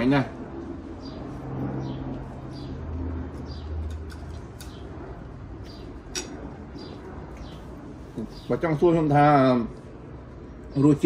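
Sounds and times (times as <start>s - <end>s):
small bird chirping: 6.8s - 8.6s.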